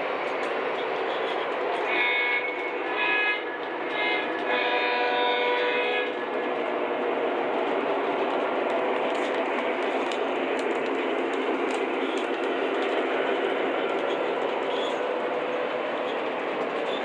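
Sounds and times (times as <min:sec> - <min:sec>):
model train wheels rattling on rail: 0:07.6 - 0:17.0.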